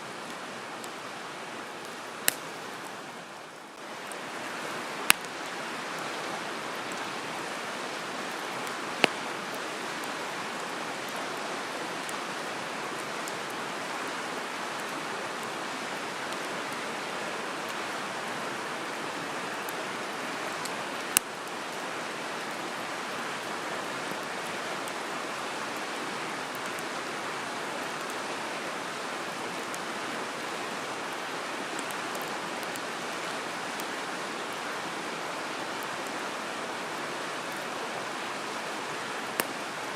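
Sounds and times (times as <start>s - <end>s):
campfire crackling pops: 1.8s - 3.0s, 4.9s - 5.5s, 8.3s - 10.2s, 20.6s - 21.3s, 39.3s - 39.7s.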